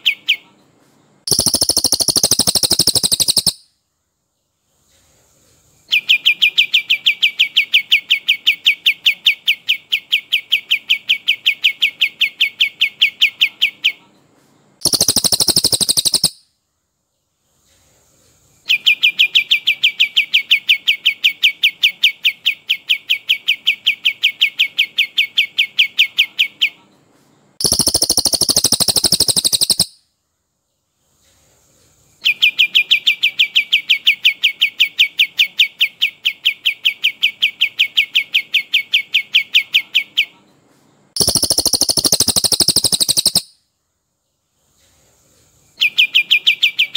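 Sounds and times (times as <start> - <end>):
harsh higher bird burst: 1.3 - 3.6, 14.8 - 16.4, 27.6 - 29.9, 41.2 - 43.5
songbird rolling trills: 1.3 - 3.6, 14.8 - 16.4, 27.6 - 29.9, 41.2 - 43.5.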